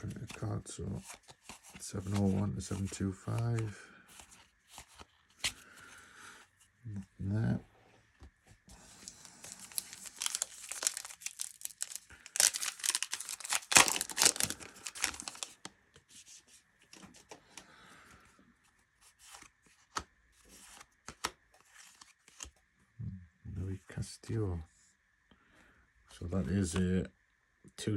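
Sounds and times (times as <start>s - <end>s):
cards clicking and rustling: 0.0s - 5.8s, 8.8s - 15.7s, 19.2s - 22.6s
wrapper crinkling and tearing: 9.0s - 15.7s.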